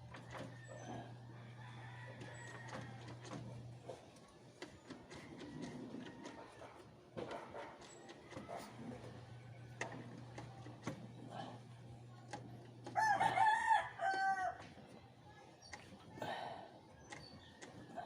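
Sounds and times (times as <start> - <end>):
rooster crowing: 13.0 - 14.6.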